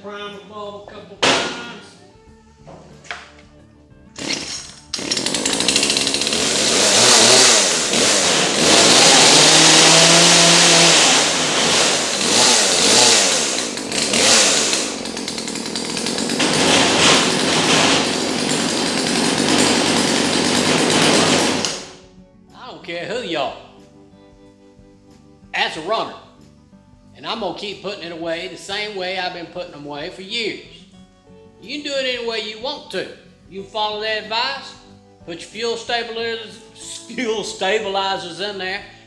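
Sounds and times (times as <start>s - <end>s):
chainsaw engine pull-started: 1.2s - 2.0s, 4.2s - 22.1s.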